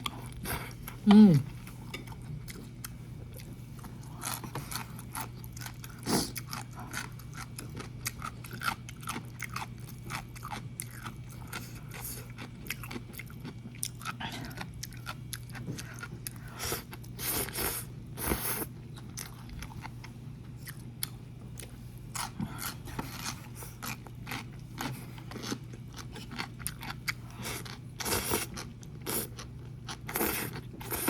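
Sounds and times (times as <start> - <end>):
chewing with wet smacks: 2.1 - 17.1.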